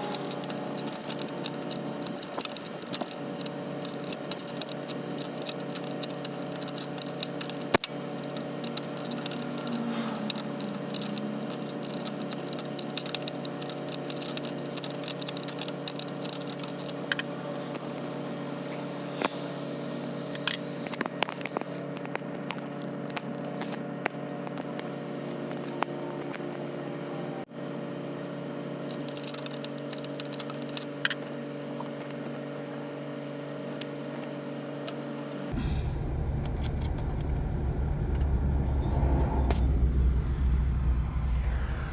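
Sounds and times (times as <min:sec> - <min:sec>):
handling clicks and scrapes: 0:00.0 - 0:27.5, 0:28.2 - 0:37.4
engine idling: 0:35.5 - 0:41.9.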